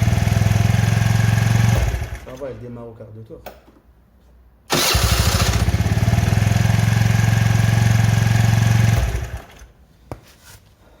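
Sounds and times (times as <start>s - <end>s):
scooter engine idling: 0.0s - 2.3s, 4.7s - 9.7s.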